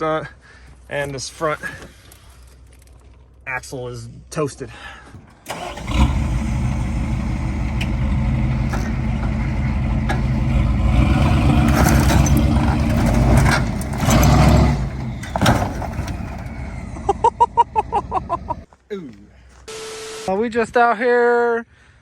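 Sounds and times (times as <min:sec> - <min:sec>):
truck engine running: 0:05.4 - 0:18.7.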